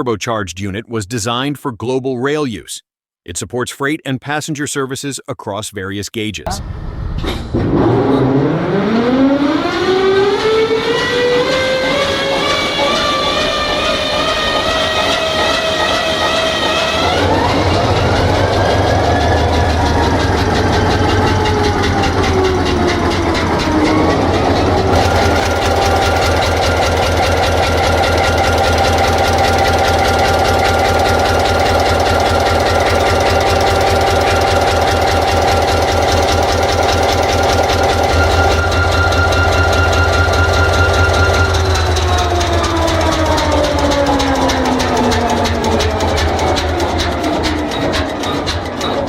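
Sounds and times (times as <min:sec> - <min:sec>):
engine whine: 0:06.5 - 0:49.0
diesel engine rumbling: 0:11.3 - 0:49.0.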